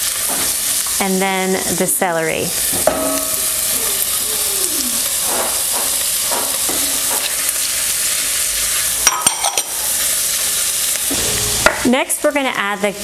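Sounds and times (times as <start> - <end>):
food sizzling in a pot: 0.0 - 13.0
glass bowl clinking on pot: 2.8 - 4.2, 9.0 - 9.7.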